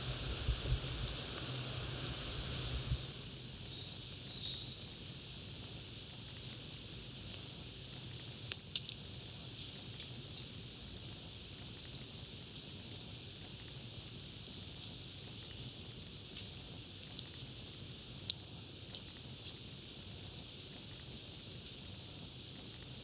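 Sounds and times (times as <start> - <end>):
campfire crackling and popping: 0.0 - 3.2.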